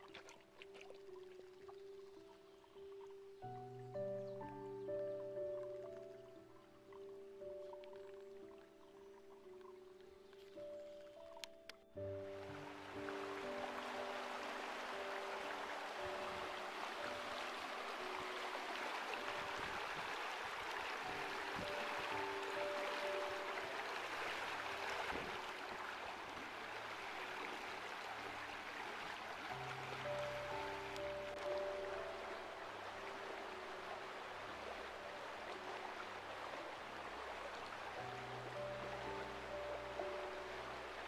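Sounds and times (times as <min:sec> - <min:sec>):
soft background music: 0:00.0 - 0:41.0
river rushing over rocks: 0:12.3 - 0:41.0.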